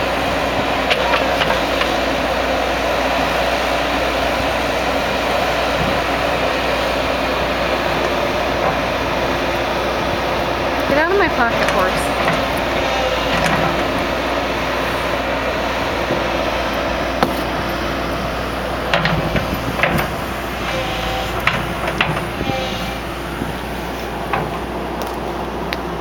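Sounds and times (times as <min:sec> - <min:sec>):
excavator engine running: 0:00.0 - 0:26.0
machine knocks and clanks: 0:10.9 - 0:14.2, 0:18.8 - 0:22.8, 0:24.2 - 0:25.2.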